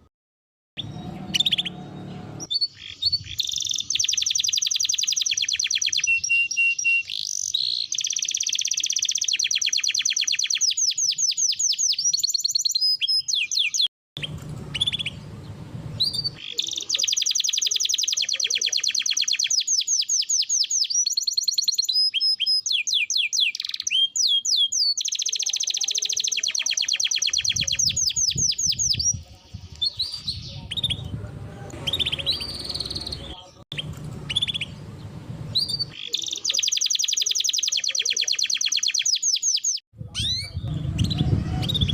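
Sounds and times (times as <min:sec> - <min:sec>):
canary singing trills: 0:00.8 - 0:41.9
low background rumble: 0:14.2 - 0:16.4, 0:30.8 - 0:35.9.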